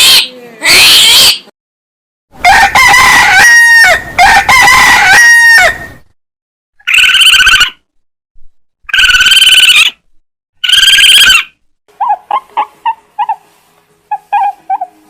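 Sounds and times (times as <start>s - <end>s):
bird harsh calls: 10.6s - 13.3s.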